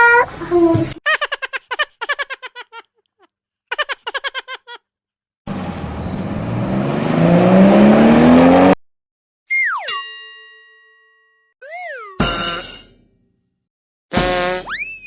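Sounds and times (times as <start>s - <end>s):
cartoon car engine revving: 5.5s - 8.8s
ringing chime: 9.9s - 11.4s.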